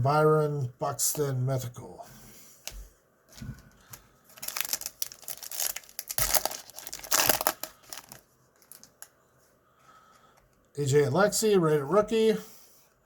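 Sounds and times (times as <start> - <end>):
foil wrapper tearing and crinkling: 3.9 - 9.1.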